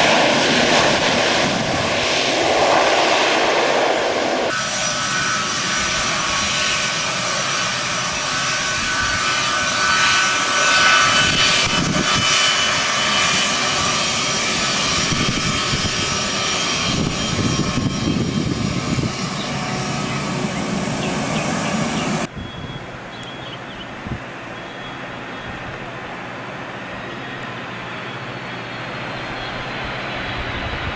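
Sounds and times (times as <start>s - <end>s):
airliner engines roaring: 0.0s - 30.9s
high steady engine whine: 0.0s - 30.9s.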